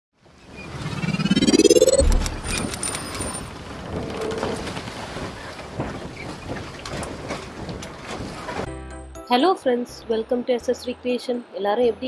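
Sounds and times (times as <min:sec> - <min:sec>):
whoosh: 0:00.6 - 0:03.0.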